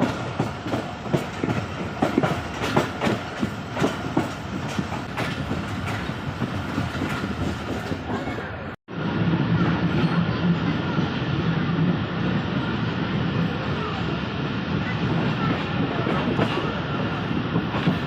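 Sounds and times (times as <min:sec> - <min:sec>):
train wheels clacking on rail joints: 0:00.0 - 0:08.6, 0:17.5 - 0:18.0
train running rumble: 0:00.0 - 0:18.0.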